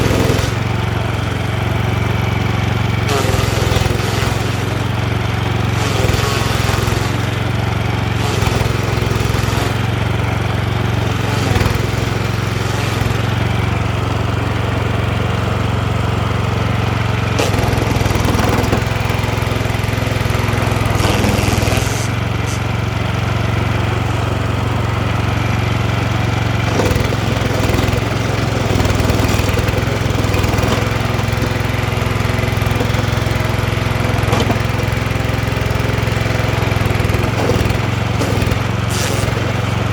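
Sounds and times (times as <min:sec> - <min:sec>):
cutter wheel knocks and scrapes: 0:00.0 - 0:05.0, 0:05.6 - 0:07.5, 0:08.1 - 0:10.3, 0:10.9 - 0:13.6, 0:17.3 - 0:22.7, 0:26.6 - 0:39.9
stump grinder engine under load: 0:00.0 - 0:39.9.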